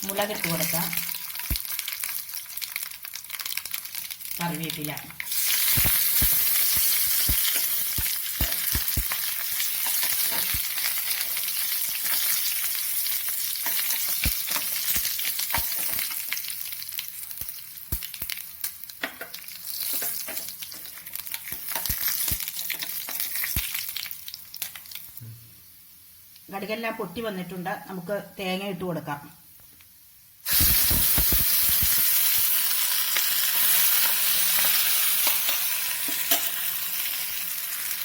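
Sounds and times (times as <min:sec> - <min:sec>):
spices sizzling in hot oil: 0:00.0 - 0:26.5, 0:29.6 - 0:38.0
mustard seeds popping: 0:01.4 - 0:02.0, 0:05.4 - 0:10.9, 0:14.0 - 0:16.2, 0:19.8 - 0:25.2, 0:30.5 - 0:33.2.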